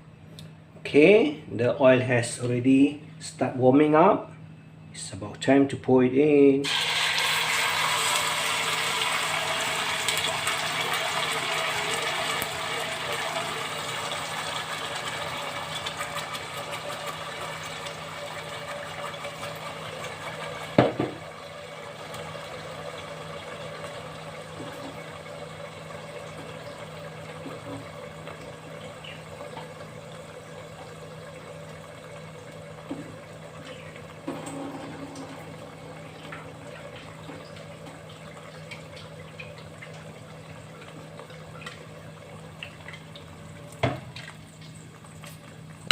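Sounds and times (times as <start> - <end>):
paste sizzling in hot oil: 6.6 - 16.2.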